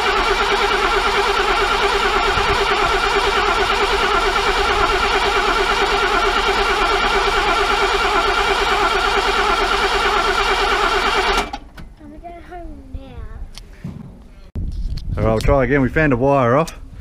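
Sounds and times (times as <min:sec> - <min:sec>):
starter motor cranking engine: 0:00.0 - 0:11.7.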